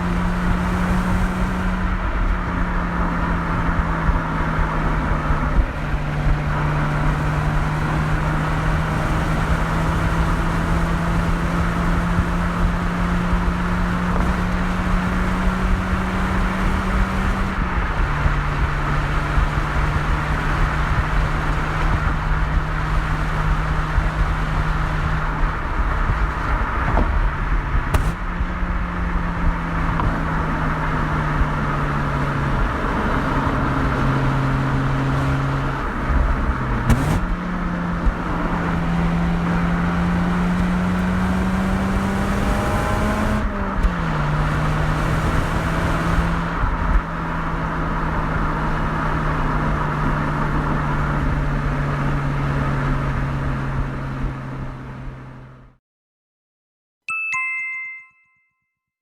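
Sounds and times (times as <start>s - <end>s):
rotary engine driving: 0.0s - 47.1s.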